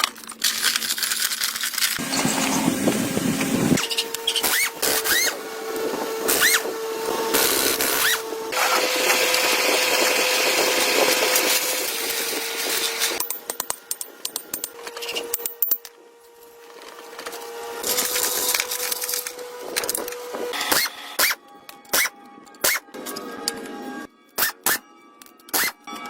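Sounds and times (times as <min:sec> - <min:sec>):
power tool humming: 0:02.0 - 0:15.8.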